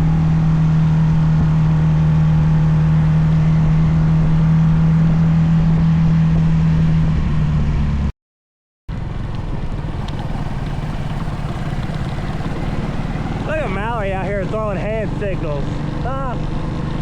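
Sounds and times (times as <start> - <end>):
road and wind noise: 0.0 - 8.1, 8.9 - 17.0
mini bike engine running: 8.9 - 17.0.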